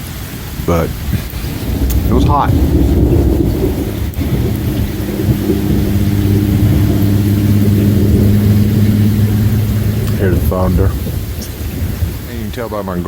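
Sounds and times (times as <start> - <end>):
steady rain falling: 0.0 - 13.0
thunder rumbling: 0.0 - 13.0.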